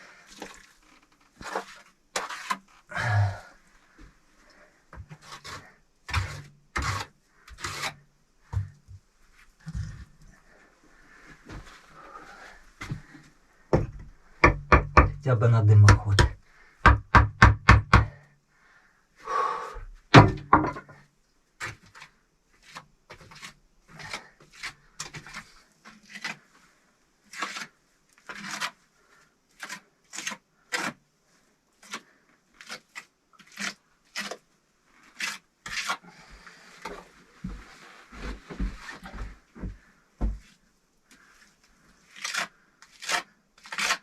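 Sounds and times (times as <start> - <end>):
trowel scraping mortar on bricks: 1.4 - 2.8, 5.0 - 8.8, 21.6 - 26.5, 27.3 - 31.0, 31.8 - 34.4, 35.0 - 36.0, 42.0 - 44.0
knock: 13.7 - 15.2, 15.9 - 18.2, 20.2 - 20.9.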